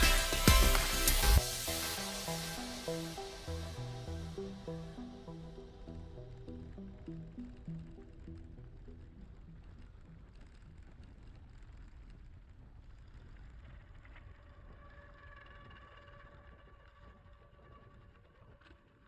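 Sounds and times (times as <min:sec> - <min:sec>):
steady held tone: 0:00.0 - 0:10.3.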